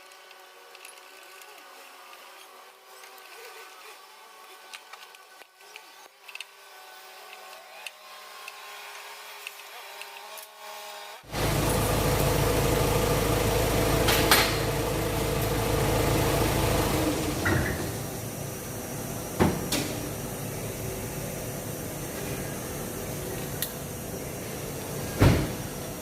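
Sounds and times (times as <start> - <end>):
steady mechanical hum: 0.0 - 10.6, 11.2 - 26.0.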